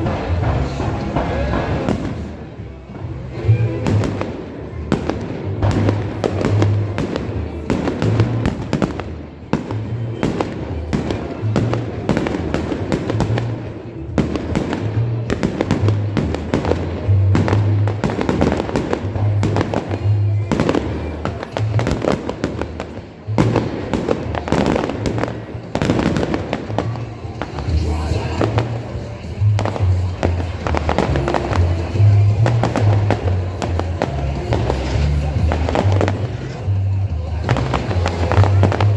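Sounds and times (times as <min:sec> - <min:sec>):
fireworks bangs and crackling: 0:00.0 - 0:38.9
music with pulsing bass: 0:23.4 - 0:38.9.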